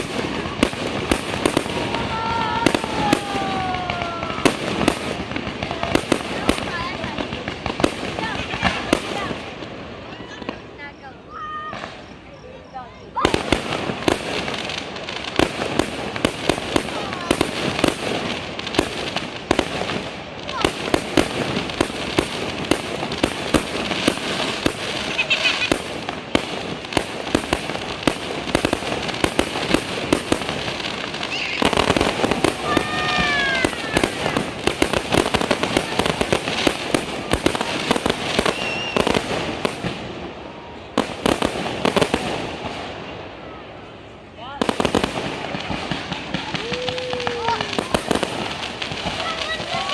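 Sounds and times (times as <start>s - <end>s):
fireworks crackling: 0.0s - 49.9s
firework whistle: 31.1s - 39.3s.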